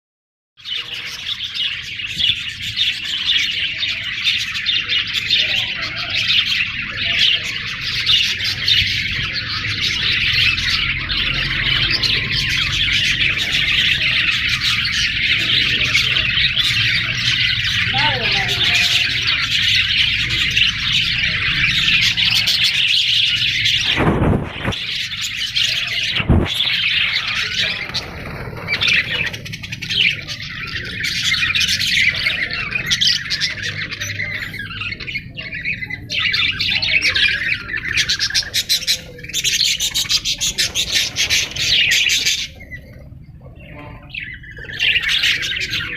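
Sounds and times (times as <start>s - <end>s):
parrots chattering and chirping: 0.6s - 45.9s.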